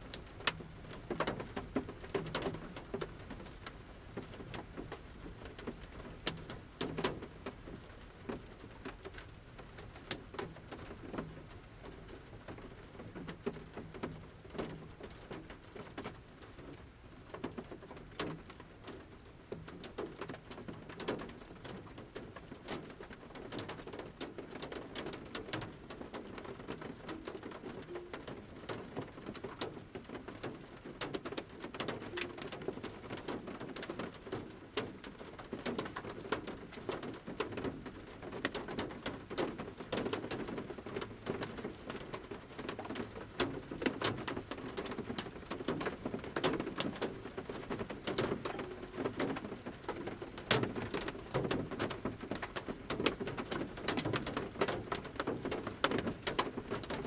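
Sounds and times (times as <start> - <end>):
steady rain hiss: 0.0 - 26.2, 29.3 - 57.0
raindrops tapping on metal roof: 0.0 - 57.0.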